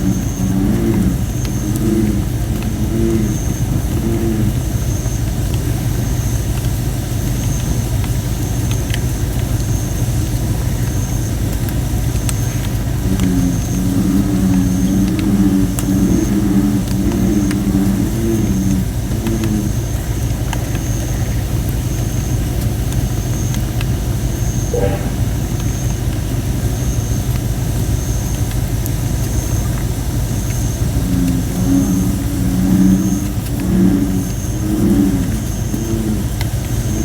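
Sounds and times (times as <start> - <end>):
bullfrogs croaking: 0.0 - 7.9, 11.8 - 37.0
low rumble: 24.6 - 25.9
faint high chirp: 24.7 - 25.5.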